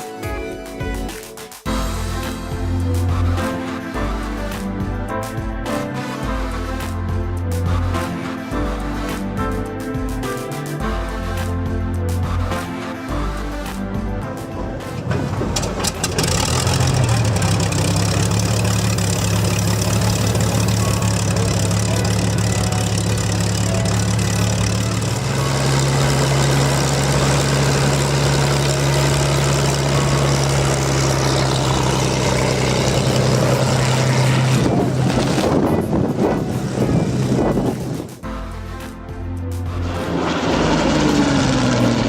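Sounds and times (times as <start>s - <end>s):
engine running: 13.6s - 38.8s, 39.4s - 42.0s.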